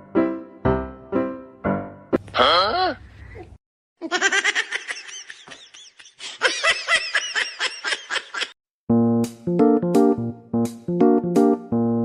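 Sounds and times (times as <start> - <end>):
person laughing: 3.3 - 8.6.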